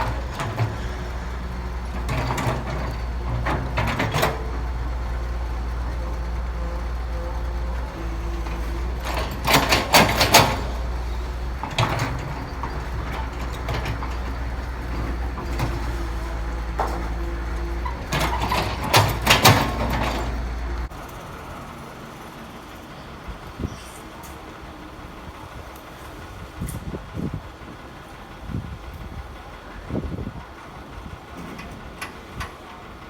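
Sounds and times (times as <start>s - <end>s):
loud clattering and scraping: 0.0s - 20.9s
diesel engine running: 0.0s - 33.0s.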